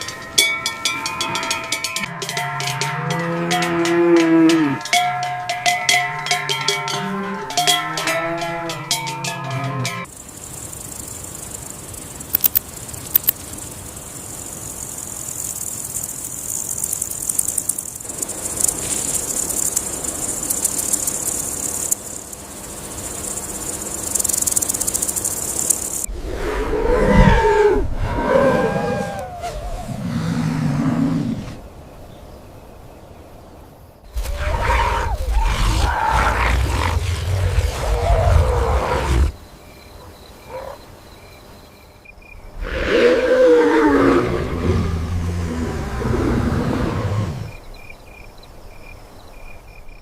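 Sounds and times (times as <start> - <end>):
faint rapid clicking: 10.0 - 26.1
steady high hiss: 10.0 - 50.0
animal lowing: 26.1 - 31.6.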